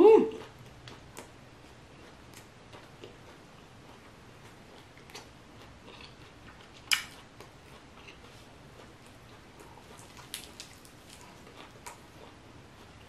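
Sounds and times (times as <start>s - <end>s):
wet mouth clicks from chewing: 4.7s - 12.4s.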